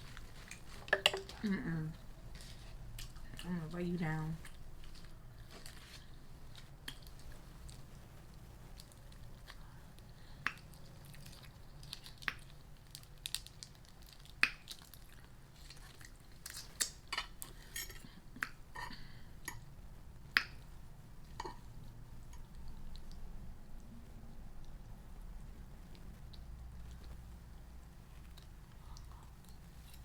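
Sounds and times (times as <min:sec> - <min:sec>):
chewing and wet mouth sounds: 0:00.0 - 0:30.0.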